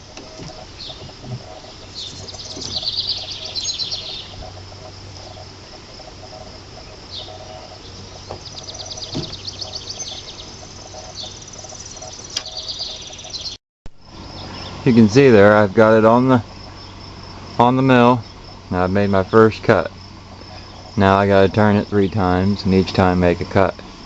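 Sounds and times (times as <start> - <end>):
bird high trills: 0.0 - 15.0
faint insects chirping: 0.0 - 24.0.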